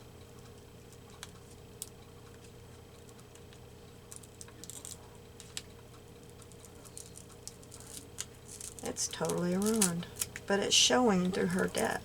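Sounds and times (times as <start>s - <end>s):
faint steady hum: 0.0s - 12.0s
paper cutouts clicking and tapping: 6.4s - 10.4s, 11.3s - 12.0s
scratchy paper rustle: 6.5s - 10.4s.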